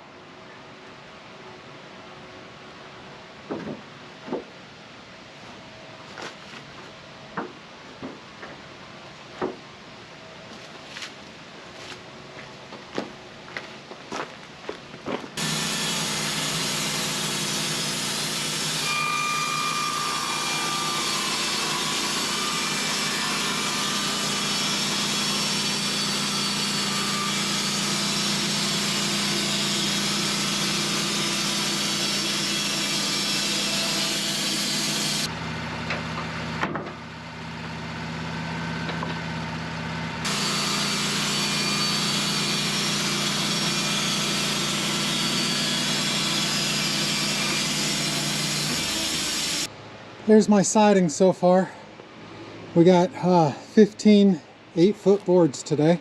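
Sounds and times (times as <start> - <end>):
sawmill engine running: 15.4 - 49.7.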